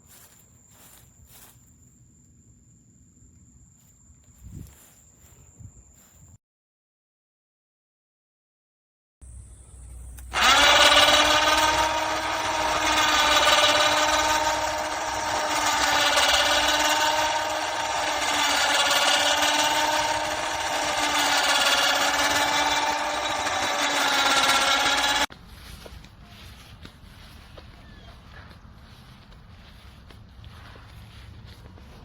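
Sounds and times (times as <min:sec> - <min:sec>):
small motor whining: 0:09.3 - 0:25.3.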